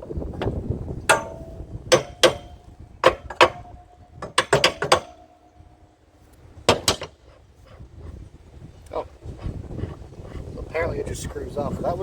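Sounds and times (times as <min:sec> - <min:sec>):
hand tools clanking on metal: 0:00.1 - 0:07.3.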